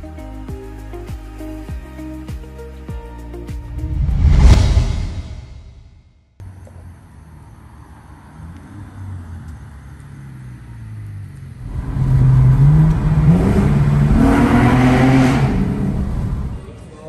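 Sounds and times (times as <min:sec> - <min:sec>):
road and wind rush: 0:03.6 - 0:16.8
car engine accelerating: 0:06.5 - 0:16.8.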